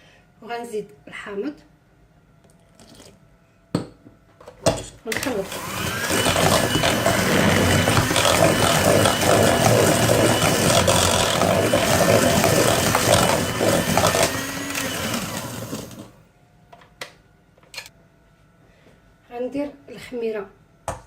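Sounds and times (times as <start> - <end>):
electric mixer running: 5.2 - 16.2.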